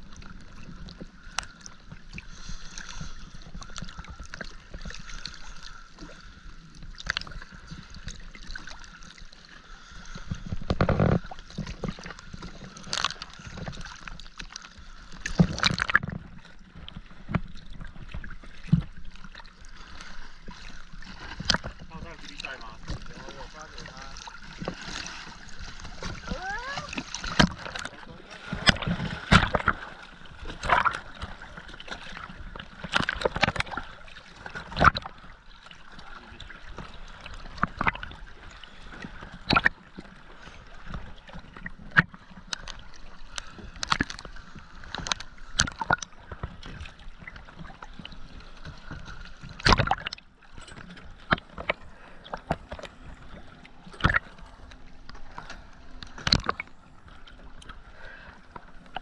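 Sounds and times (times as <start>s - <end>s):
sea water sloshing and splashing: 0.0s - 59.0s.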